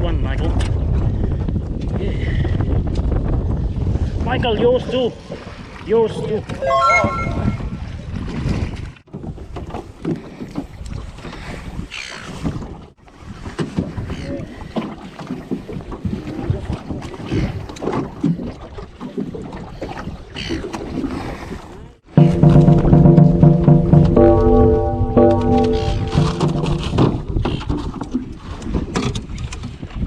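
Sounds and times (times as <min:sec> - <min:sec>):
wind buffeting microphone: 0:00.0 - 0:06.6, 0:07.4 - 0:14.8
boat noise over water: 0:06.4 - 0:08.2, 0:08.8 - 0:30.0
music: 0:06.6 - 0:07.6, 0:22.1 - 0:27.1.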